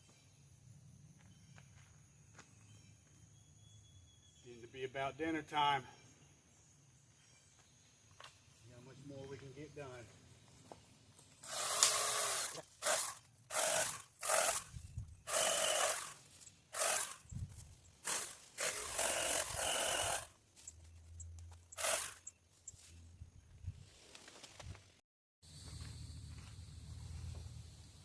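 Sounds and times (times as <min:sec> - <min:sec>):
hand saw rasping through branch: 0:11.4 - 0:14.7, 0:15.3 - 0:17.2, 0:18.0 - 0:20.3, 0:21.8 - 0:22.3.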